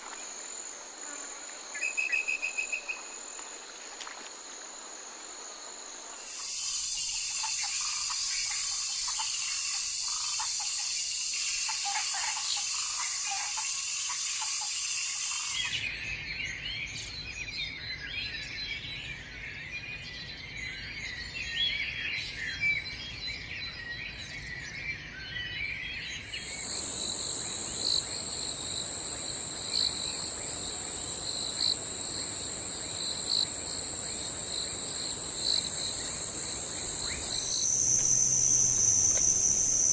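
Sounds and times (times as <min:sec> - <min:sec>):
insect trill: 0:00.0 - 0:15.9, 0:26.3 - 0:39.9
insects buzzing: 0:00.0 - 0:15.9, 0:26.3 - 0:39.9
pulsing calls: 0:06.2 - 0:15.8, 0:29.6 - 0:39.9
birds chirping and twittering: 0:06.2 - 0:39.9.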